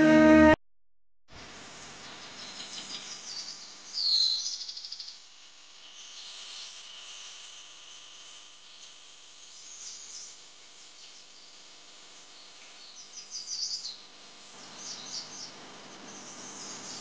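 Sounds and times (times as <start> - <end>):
small birds chirping: 12.4 - 17.0.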